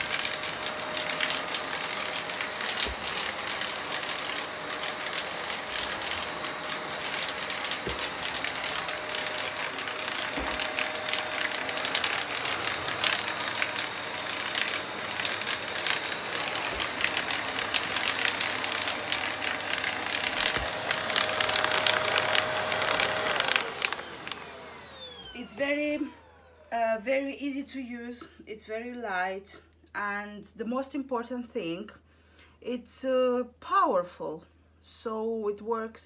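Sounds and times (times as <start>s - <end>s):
vacuum cleaner motor whine: 0.0s - 26.7s.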